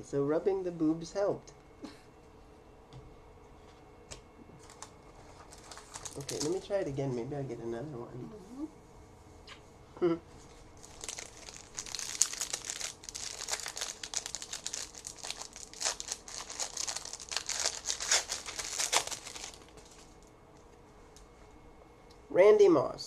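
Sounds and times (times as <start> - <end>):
card pack wrapper crinkling and tearing: 4.6 - 6.7, 10.8 - 20.0.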